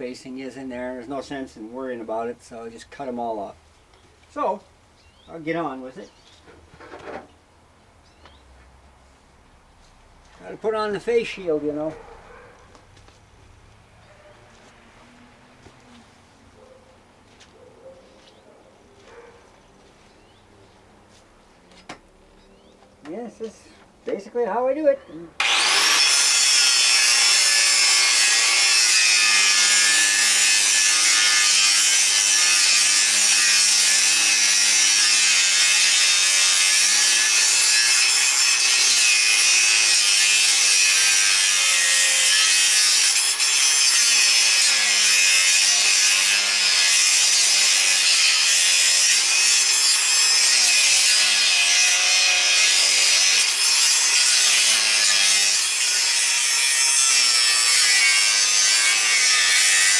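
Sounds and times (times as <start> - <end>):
angle grinder cutting steel: 25.4 - 59.9.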